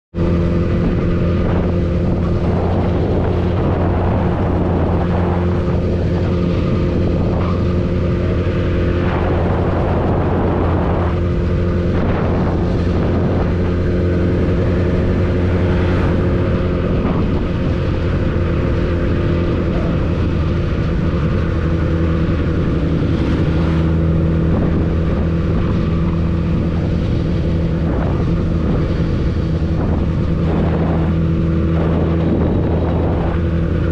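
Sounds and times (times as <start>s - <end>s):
motorcycle engine running: 0.1s - 33.9s
wind rushing over microphone: 0.1s - 33.9s.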